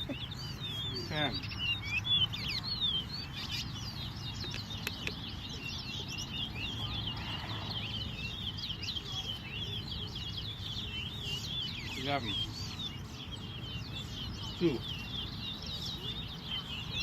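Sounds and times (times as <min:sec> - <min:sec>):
flock of small birds chirping: 0:00.0 - 0:17.0.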